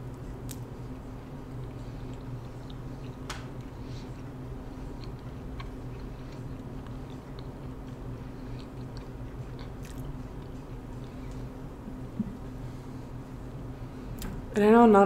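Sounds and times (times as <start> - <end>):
steady low hum: 0.0 - 15.0
close-miked chewing: 0.9 - 11.7.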